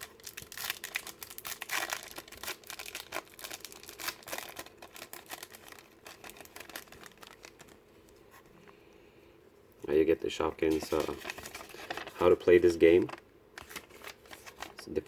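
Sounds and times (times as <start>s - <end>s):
wrapper crinkling and tearing: 0.0s - 7.8s, 10.7s - 15.0s.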